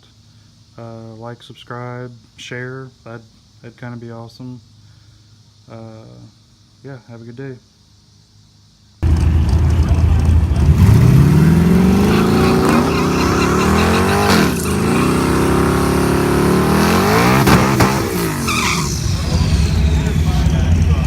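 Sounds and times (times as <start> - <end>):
car engine accelerating hard: 9.0 - 21.0.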